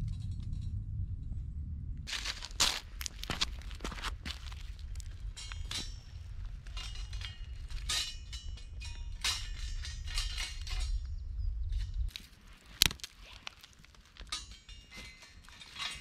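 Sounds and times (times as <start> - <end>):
low rumble: 0.0 - 12.2
clicks and metallic clinks: 3.0 - 11.0, 11.7 - 16.0.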